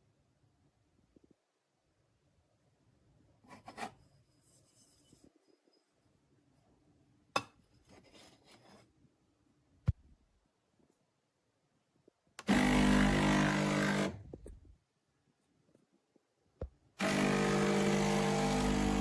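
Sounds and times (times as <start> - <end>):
espresso machine pump buzzing: 12.5 - 14.1, 17.0 - 19.0.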